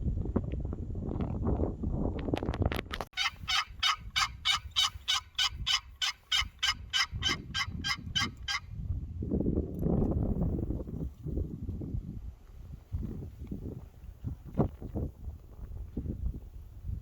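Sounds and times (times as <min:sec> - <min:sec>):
low wind rumble on microphone: 0:00.0 - 0:17.0
turkey yelping: 0:03.2 - 0:08.7.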